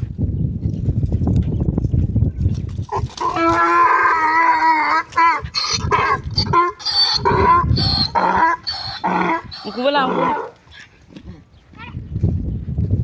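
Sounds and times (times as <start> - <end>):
donkey braying: 3.2 - 10.6.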